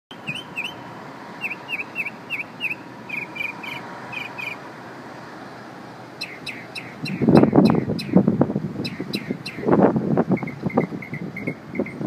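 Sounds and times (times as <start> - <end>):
bird chirping: 0.1 - 0.8, 1.4 - 4.6, 6.2 - 8.2, 8.8 - 9.7
street noise: 0.1 - 12.0.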